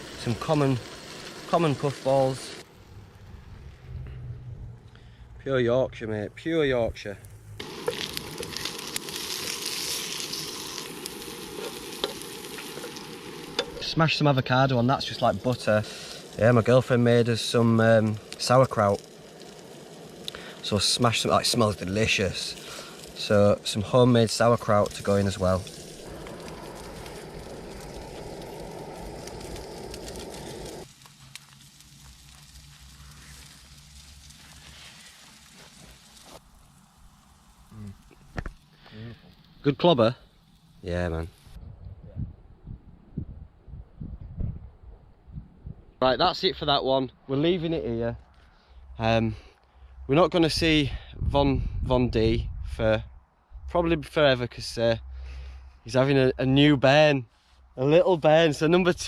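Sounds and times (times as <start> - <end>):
bacon sizzling in a frying pan: 0.0 - 2.7, 7.5 - 41.6.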